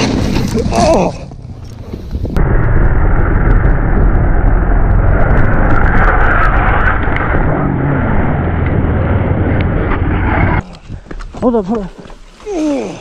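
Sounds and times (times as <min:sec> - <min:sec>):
wind rushing: 0:00.0 - 0:11.1
road noise: 0:00.0 - 0:12.3
motorcycle engine running: 0:00.6 - 0:05.8.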